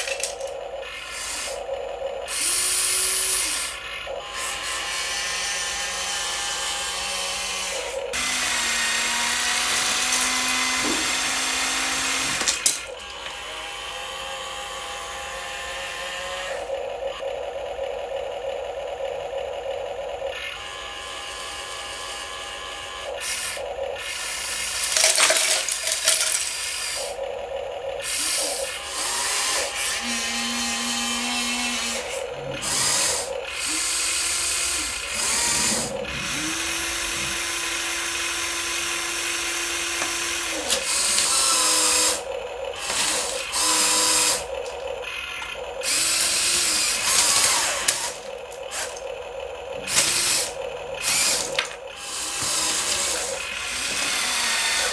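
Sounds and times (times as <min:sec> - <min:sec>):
model vehicle motors whirring: 0:00.0 - 0:54.9.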